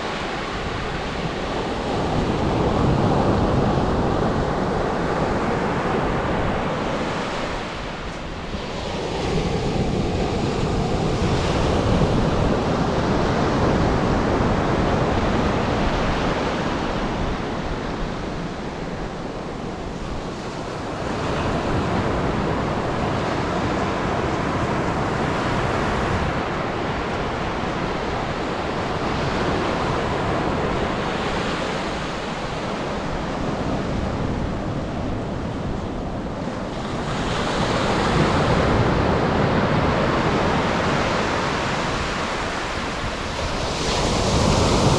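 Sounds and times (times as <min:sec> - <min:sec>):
surf breaking on a beach: 0:00.0 - 0:44.9
wind on microphone: 0:00.0 - 0:44.9.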